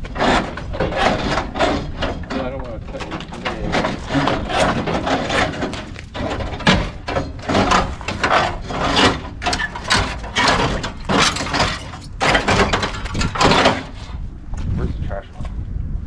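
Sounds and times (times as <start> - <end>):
clattering from mechanical work: 0.0 - 14.2.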